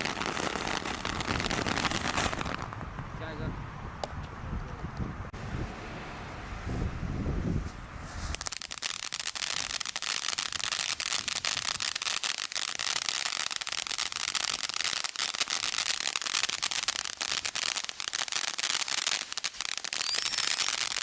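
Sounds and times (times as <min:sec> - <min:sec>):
firework hiss: 0:00.0 - 0:02.8, 0:08.0 - 0:21.0
firework crackling: 0:00.0 - 0:03.0, 0:08.1 - 0:21.0.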